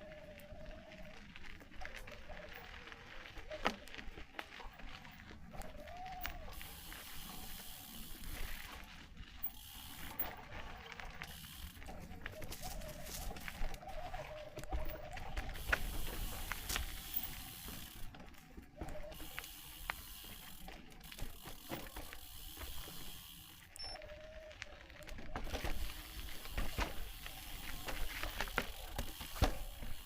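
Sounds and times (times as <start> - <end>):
footsteps on rocky trail: 0.3 - 24.0, 24.6 - 30.0.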